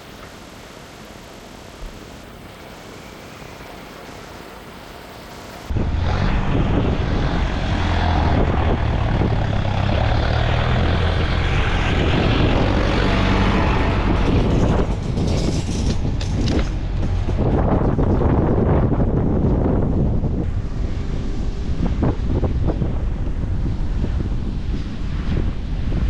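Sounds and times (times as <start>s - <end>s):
rushing wind: 0.0s - 26.0s
loud engine drone: 5.6s - 26.0s.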